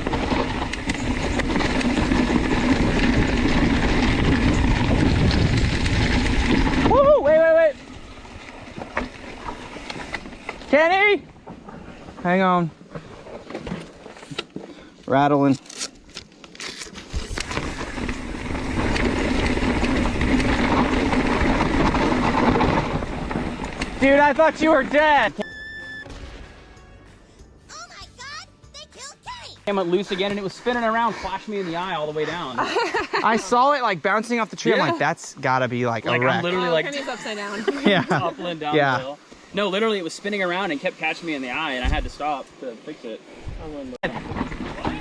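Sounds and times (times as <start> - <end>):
bike rattling over rocks: 0.0 - 25.4, 43.6 - 45.0.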